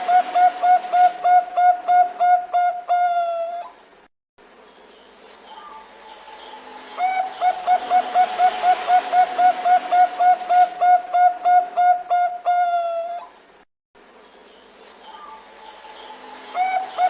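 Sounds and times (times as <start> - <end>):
dove cooing: 0.0 - 3.8, 6.4 - 13.3, 16.0 - 17.0.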